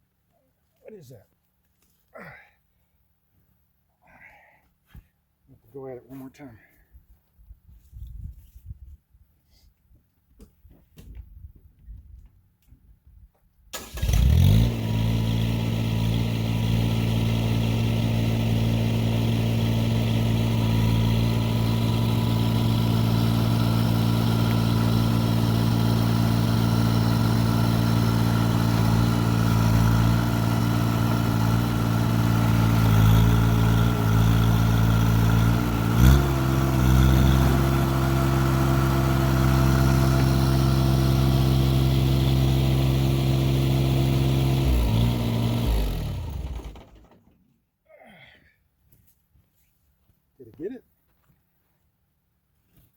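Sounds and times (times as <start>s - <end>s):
tractor engine revving: 13.8s - 47.3s.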